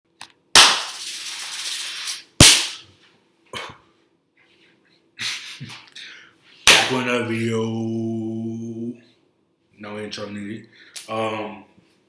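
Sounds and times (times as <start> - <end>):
hiss: 0.7 - 2.8
loud sharp bangs: 2.4 - 2.8.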